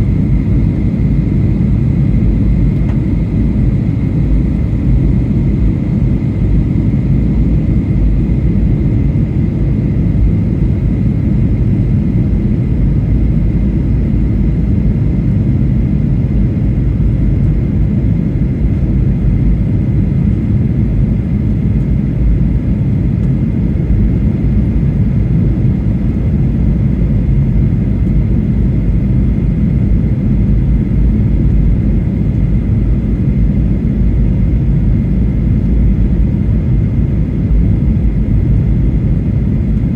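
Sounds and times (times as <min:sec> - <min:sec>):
airplane cabin roar: 0:00.0 - 0:39.9
faint steady whine: 0:00.0 - 0:39.9.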